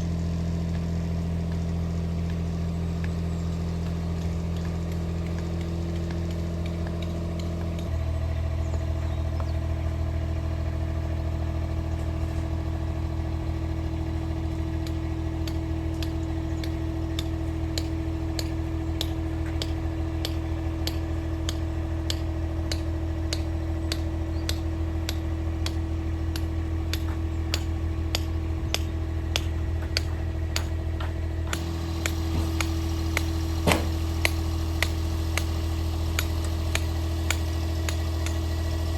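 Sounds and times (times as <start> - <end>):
engine running steadily: 0.0 - 38.9
sharp ticks: 36.2 - 38.4.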